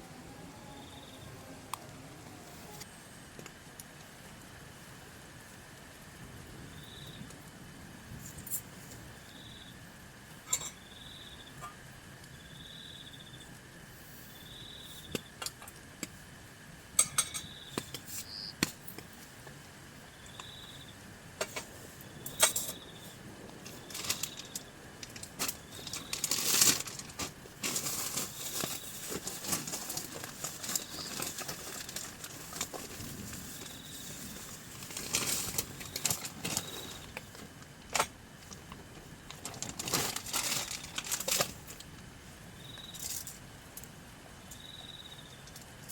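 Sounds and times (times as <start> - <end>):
faint high chirp: 17.3 - 18.6, 44.5 - 45.4
rustling clatter: 23.6 - 41.8.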